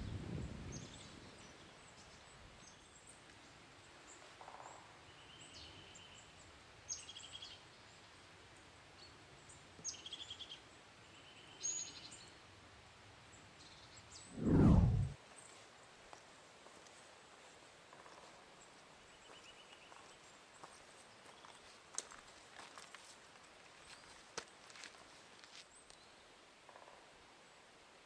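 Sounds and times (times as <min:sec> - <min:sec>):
low rumble: 0:14.4 - 0:15.2.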